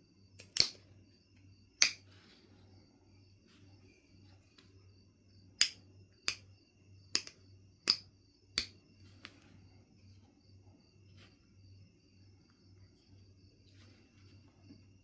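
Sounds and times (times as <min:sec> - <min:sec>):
flint knapping clicks: 0:00.4 - 0:00.8, 0:01.8 - 0:02.0, 0:05.6 - 0:06.4, 0:07.1 - 0:09.4.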